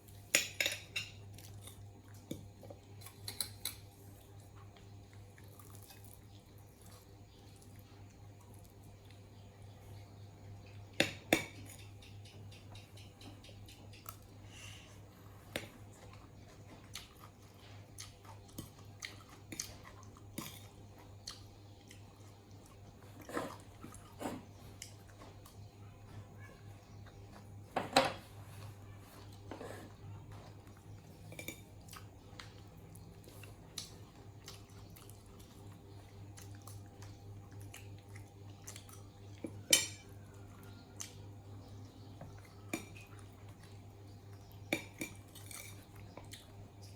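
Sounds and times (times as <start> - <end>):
dishes clinking: 0.3 - 1.2.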